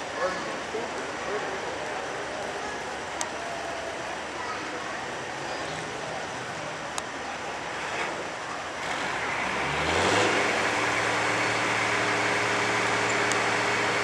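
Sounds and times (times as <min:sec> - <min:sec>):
truck diesel engine revving: 0:08.8 - 0:14.0.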